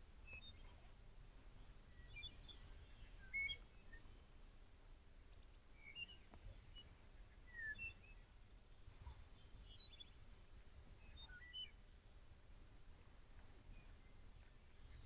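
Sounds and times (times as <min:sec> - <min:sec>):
faint low rumble: 0:00.0 - 0:15.0
bird chirps: 0:00.2 - 0:00.9, 0:01.9 - 0:04.1, 0:05.8 - 0:10.2, 0:11.0 - 0:12.1.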